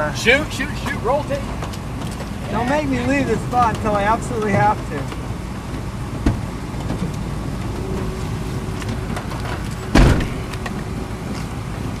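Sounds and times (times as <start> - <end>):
loud thump: 6.2 - 7.1, 9.9 - 10.5.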